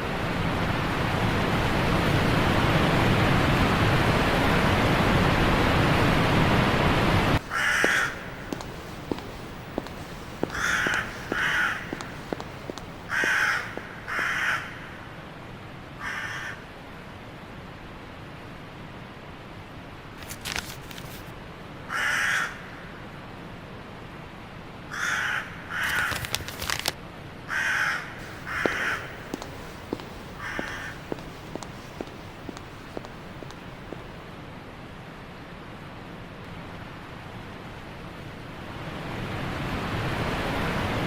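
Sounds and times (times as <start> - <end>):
harsh bird calls: 7.4 - 14.8, 28.2 - 32.9.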